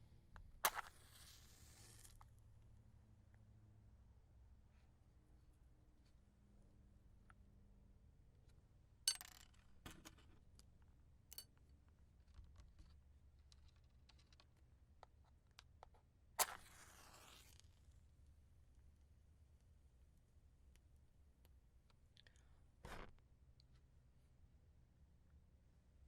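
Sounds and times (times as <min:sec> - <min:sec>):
match striking and flaring: 0:00.6 - 0:02.2, 0:16.4 - 0:17.8
small clicks and taps: 0:09.4 - 0:16.1.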